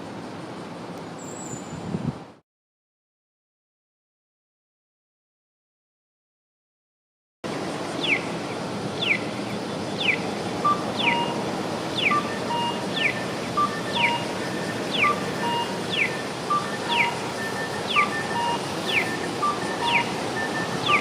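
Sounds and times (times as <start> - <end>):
street noise: 0.0 - 2.4, 7.4 - 21.0
electronic bird chirp signal: 8.0 - 8.3, 9.0 - 9.3, 10.0 - 21.0
short beeps: 10.6 - 11.4, 12.0 - 21.0.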